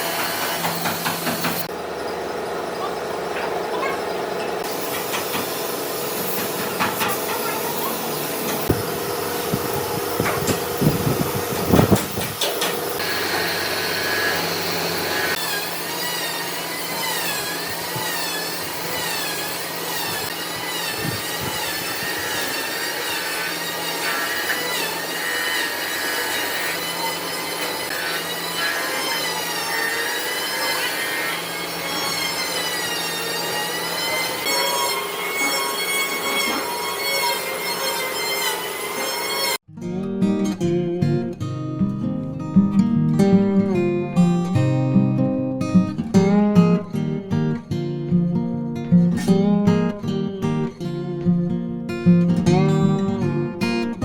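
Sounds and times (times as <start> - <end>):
power tool cutting wood: 0.0 - 39.7.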